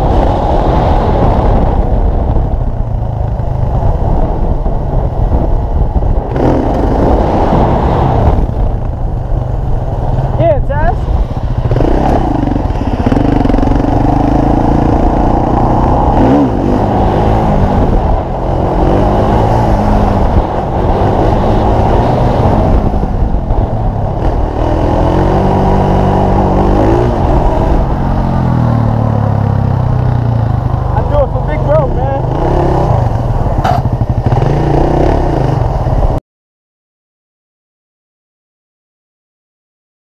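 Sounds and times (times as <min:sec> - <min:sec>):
off-road vehicle engine revving: 0:06.3 - 0:08.5, 0:10.6 - 0:36.1.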